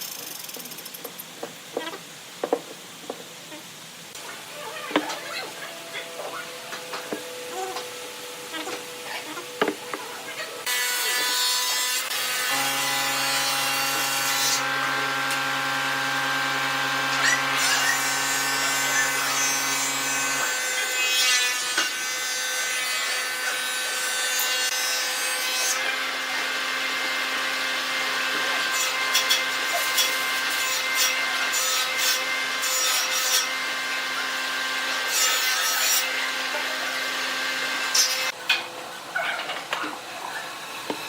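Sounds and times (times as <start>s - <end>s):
power tool whining on wood: 12.0s - 35.5s.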